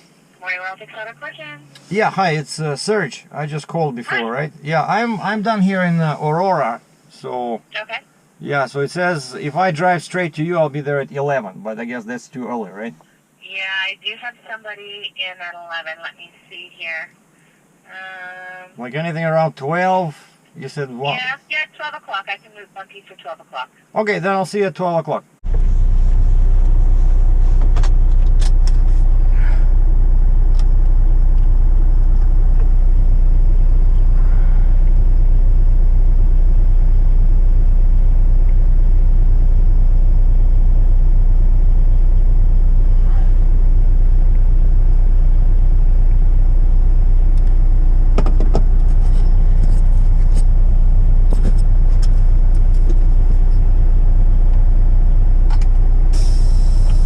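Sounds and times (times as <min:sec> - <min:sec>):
diesel truck engine droning: 0:25.4 - 0:57.0.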